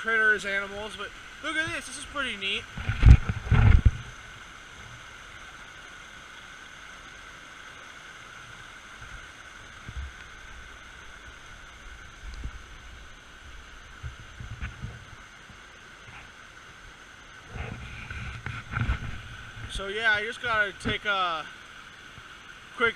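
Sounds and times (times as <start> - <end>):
creek water flowing: 0.0 - 22.9
low thumps on microphone: 2.7 - 4.1, 17.5 - 19.7.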